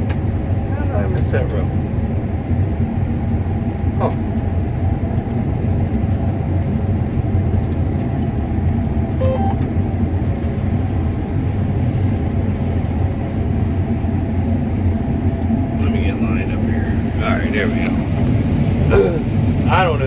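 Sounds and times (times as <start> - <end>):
combine harvester machinery drone: 0.0 - 20.0
short high tone: 9.2 - 9.7.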